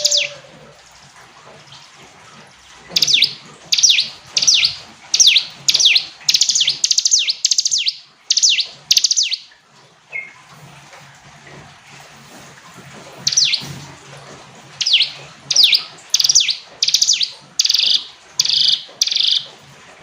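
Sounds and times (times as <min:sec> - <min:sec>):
small bird singing high notes: 0:00.0 - 0:00.5, 0:14.8 - 0:19.4.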